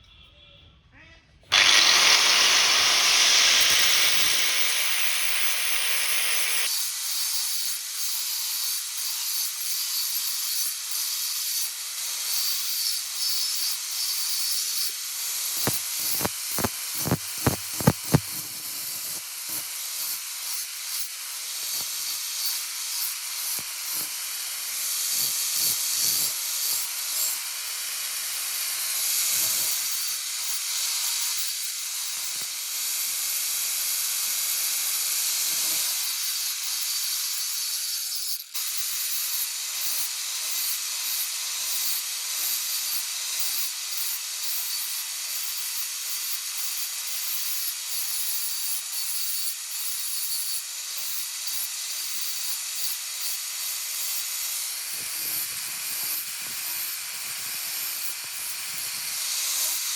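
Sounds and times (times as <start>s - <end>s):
steady loud hiss: 1.5s - 6.7s.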